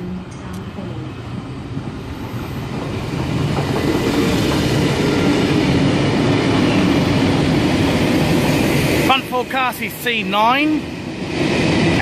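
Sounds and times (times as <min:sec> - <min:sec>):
train wheels clattering on rails: 0:02.6 - 0:10.0.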